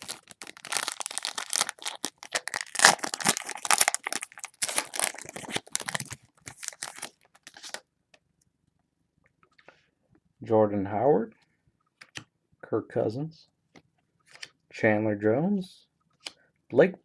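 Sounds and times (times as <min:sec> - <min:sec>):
wrapper crinkling and tearing: 0:00.0 - 0:07.8.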